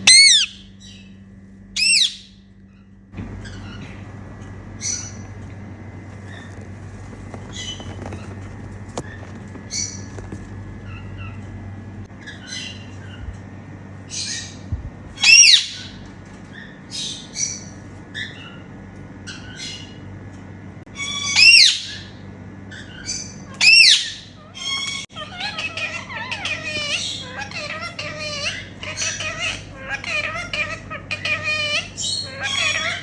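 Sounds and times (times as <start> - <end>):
soft parakeet chirps: 0.0 - 1.1, 1.8 - 2.3
parakeets screeching: 0.0 - 1.2, 1.8 - 2.4, 3.3 - 13.4, 14.0 - 14.6, 15.2 - 20.0, 20.9 - 33.0.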